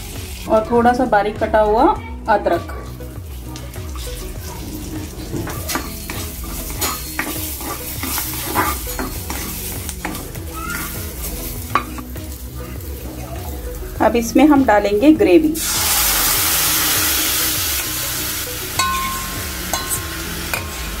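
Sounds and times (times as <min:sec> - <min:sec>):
butter sizzling in a pan: 0:00.0 - 0:00.7, 0:02.3 - 0:21.0
spatula scraping a pan: 0:02.8 - 0:13.2.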